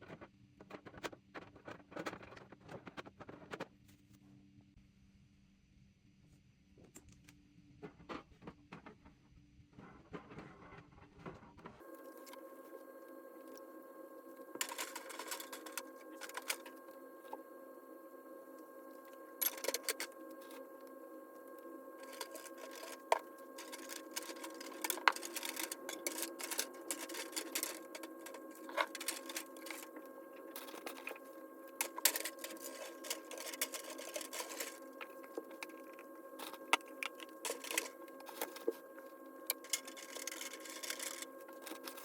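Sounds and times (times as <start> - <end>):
steady hum: 11.8 - 42.0.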